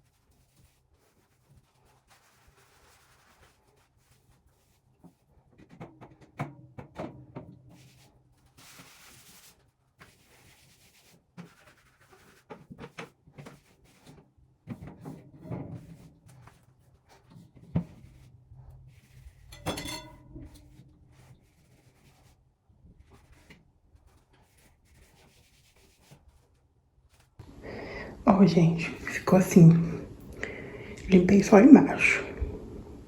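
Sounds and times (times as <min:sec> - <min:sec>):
ringing clink: 0:19.6 - 0:20.2.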